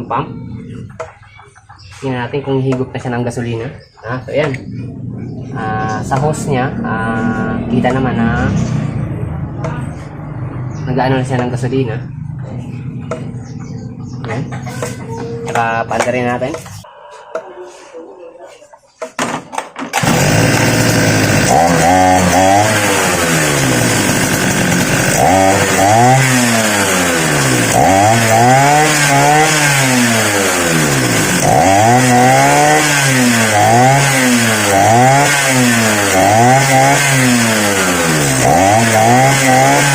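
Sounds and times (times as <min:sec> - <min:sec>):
grass cutter engine revving: 0:19.9 - 0:39.9.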